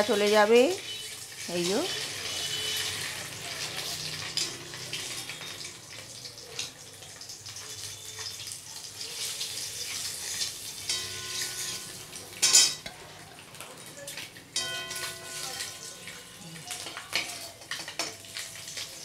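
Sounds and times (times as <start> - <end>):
eggs sizzling in oil: 0.0 - 19.0
spatula scraping metal pan: 1.6 - 5.2, 9.2 - 12.9.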